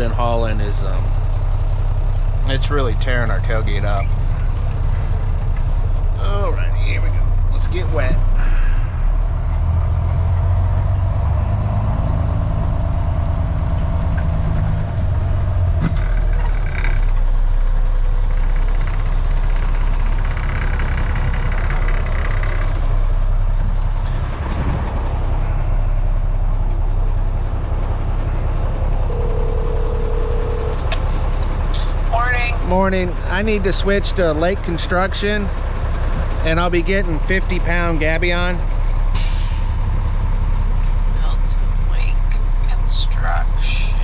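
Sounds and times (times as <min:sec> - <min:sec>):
diesel truck engine running: 0:00.0 - 0:44.0
short steady tone: 0:28.3 - 0:32.0.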